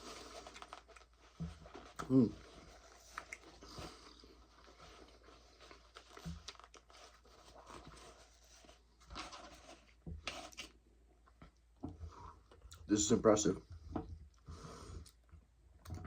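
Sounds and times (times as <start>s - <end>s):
person chewing food: 2.7s - 7.9s.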